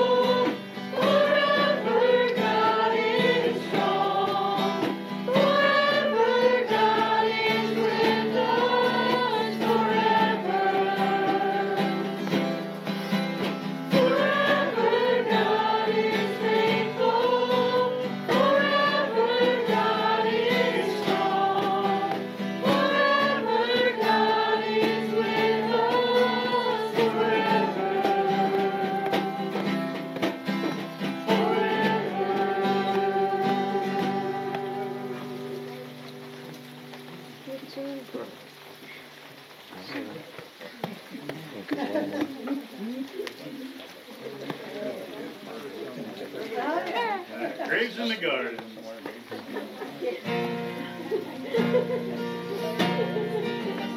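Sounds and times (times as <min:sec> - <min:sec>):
group singing a praise song: 0:00.0 - 0:35.8.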